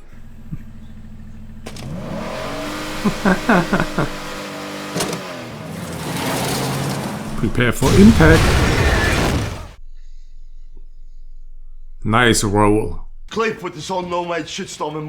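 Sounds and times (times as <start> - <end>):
car engine revving: 0.0 - 9.8.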